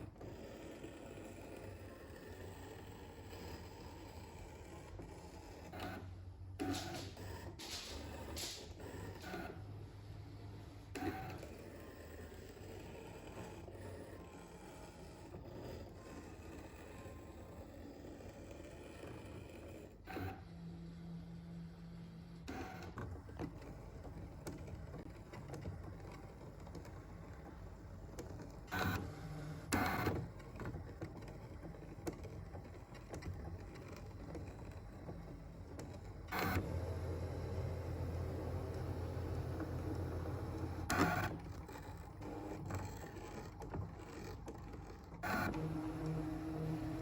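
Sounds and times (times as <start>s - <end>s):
cutting machine motor hum: 36.3s - 43.4s, 45.2s - 47.0s.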